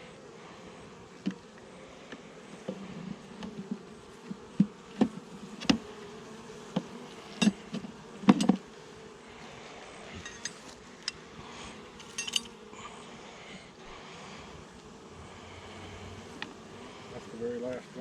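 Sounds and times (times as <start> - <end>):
bees buzzing: 0.0 - 18.0
knocks and taps of hive frames: 1.2 - 1.5, 2.1 - 6.0, 6.6 - 8.7.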